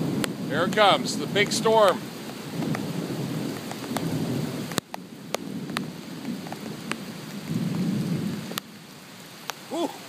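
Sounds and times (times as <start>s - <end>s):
low rumble of thunder: 0.0s - 9.0s
heavy rain: 0.0s - 10.0s
raindrops ticking on microphone: 0.0s - 10.0s.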